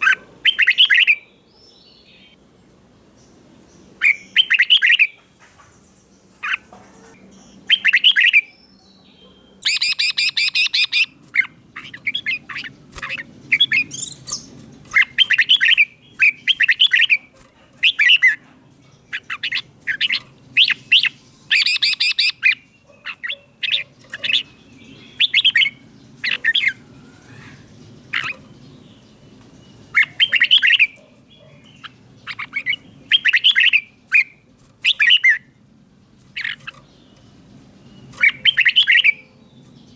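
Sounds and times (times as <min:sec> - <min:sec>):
bird singing whistled phrases: 0:00.5 - 0:02.3, 0:04.0 - 0:05.2, 0:07.7 - 0:11.1, 0:19.2 - 0:22.6, 0:25.0 - 0:25.8, 0:38.2 - 0:39.3.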